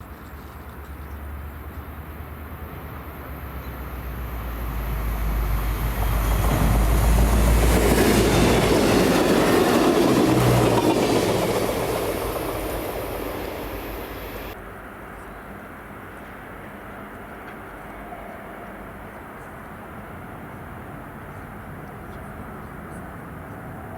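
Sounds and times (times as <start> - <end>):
diesel locomotive engine rumble: 0.1 - 14.6
train wheels clattering on rails: 4.5 - 14.6.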